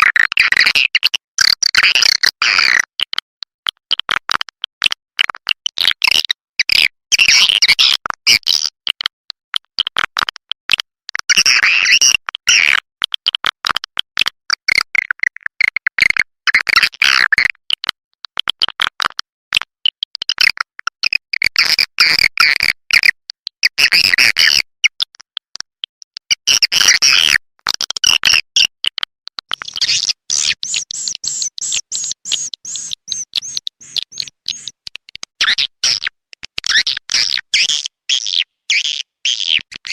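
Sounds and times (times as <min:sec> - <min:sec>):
high-pitched bird twittering: 0:29.5 - 0:36.1, 0:36.7 - 0:39.9.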